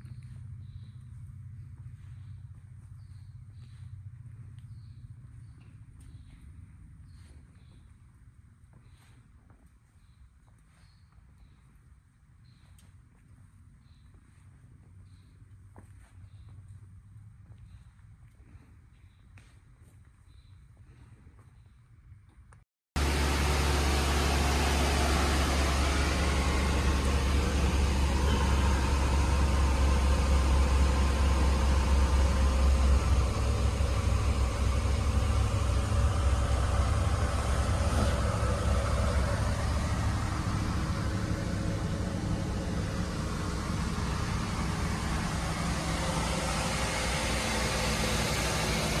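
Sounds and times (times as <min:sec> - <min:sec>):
car engine idling: 0:00.0 - 0:06.4, 0:23.0 - 0:49.0.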